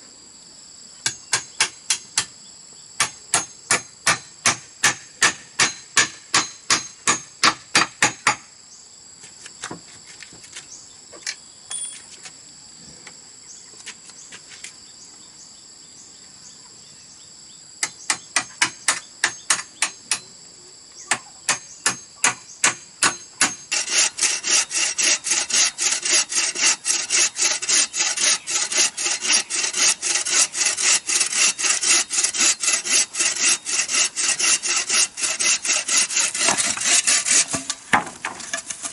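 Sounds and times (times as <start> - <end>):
insects buzzing: 0.0 - 38.9
hand saw cutting bamboo: 21.5 - 38.9.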